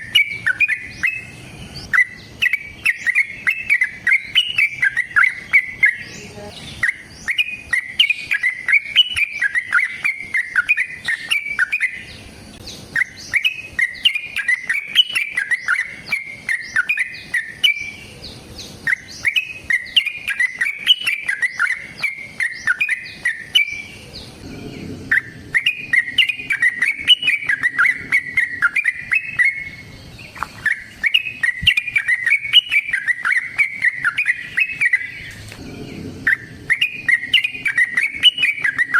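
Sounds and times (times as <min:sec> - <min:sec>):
bulbul singing bubbling song: 0:00.0 - 0:38.9.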